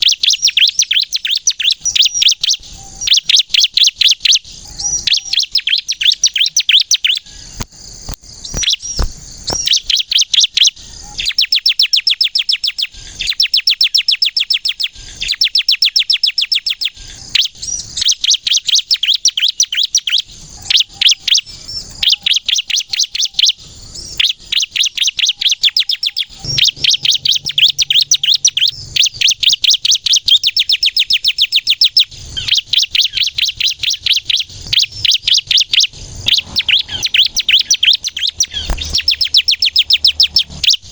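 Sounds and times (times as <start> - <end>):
bird chattering chirps: 19.0 - 40.9.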